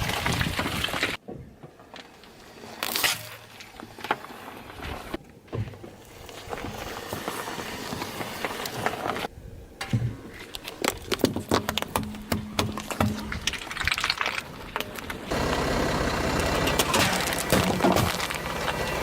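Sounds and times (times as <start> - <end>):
objects crushed under car tyre: 10.6 - 15.3, 16.6 - 19.0.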